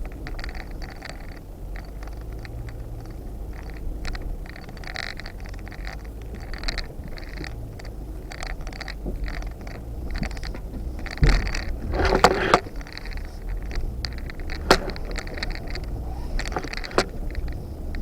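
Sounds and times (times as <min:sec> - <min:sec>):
low engine rumble: 0:00.0 - 0:18.0
vehicle rattling and clanking: 0:00.0 - 0:18.0
crunching scrape on rocks: 0:03.6 - 0:18.0.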